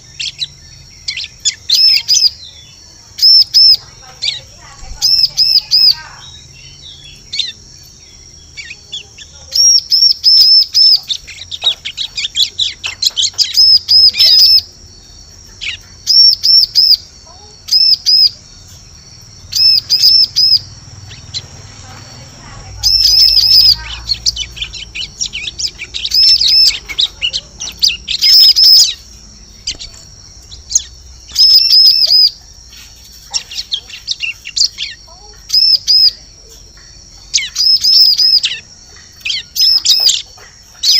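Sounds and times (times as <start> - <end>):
bird calling sharp high notes: 19.4 - 40.9.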